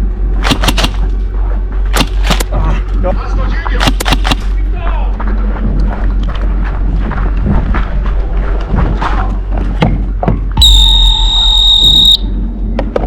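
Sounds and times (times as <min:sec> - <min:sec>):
sharp clicks: 0:00.4 - 0:01.1, 0:02.0 - 0:02.5, 0:03.7 - 0:04.6
high electronic buzzer tone: 0:10.6 - 0:12.4.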